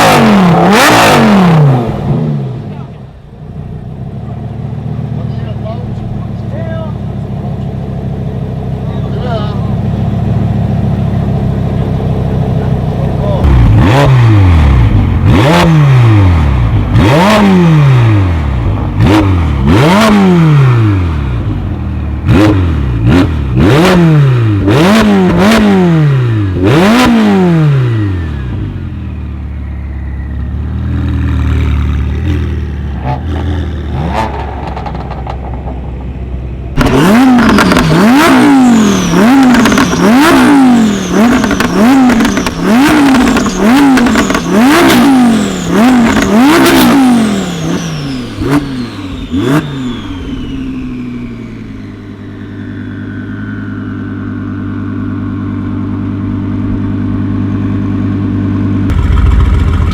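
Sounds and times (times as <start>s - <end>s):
car engine revving: 0.0s - 59.9s
exhaust pops and bangs: 34.3s - 38.0s, 41.2s - 45.0s, 58.9s - 59.9s.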